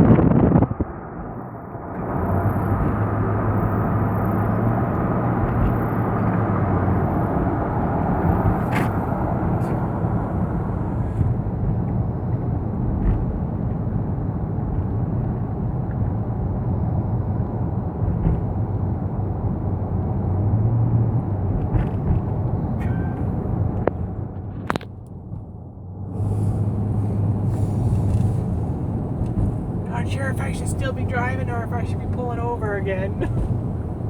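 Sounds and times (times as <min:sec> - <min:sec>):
car cabin road rumble: 0:00.0 - 0:34.0.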